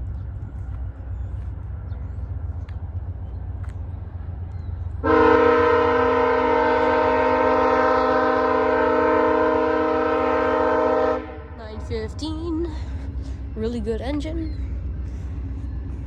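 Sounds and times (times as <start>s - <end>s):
low rumble: 0.0s - 8.6s, 11.0s - 16.0s
locomotive air horn blast: 5.0s - 11.6s.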